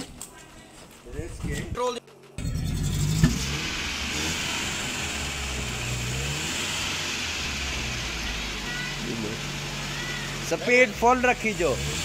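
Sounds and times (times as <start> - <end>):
car engine running: 2.4 - 12.0.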